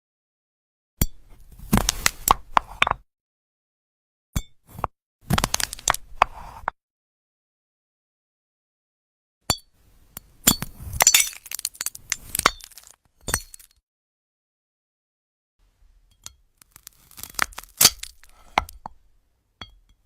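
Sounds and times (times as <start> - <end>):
crystal fruit clinking and crackling: 10.2 - 13.8, 16.1 - 19.0.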